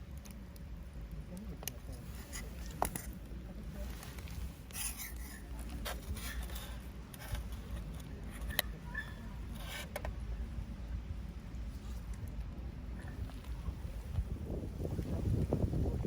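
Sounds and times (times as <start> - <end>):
steady low rumble: 0.0 - 16.0
light scraping and rubbing: 1.8 - 10.2.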